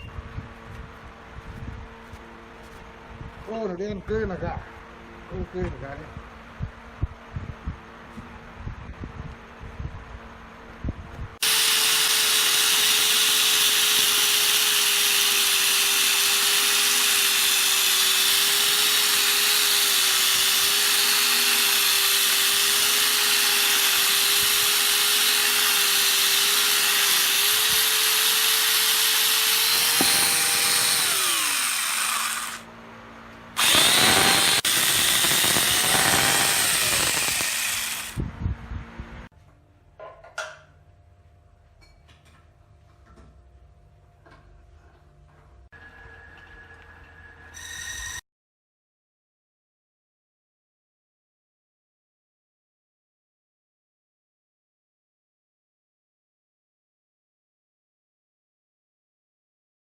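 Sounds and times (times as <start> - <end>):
power tool cutting wood: 11.4 - 32.7, 33.6 - 38.2.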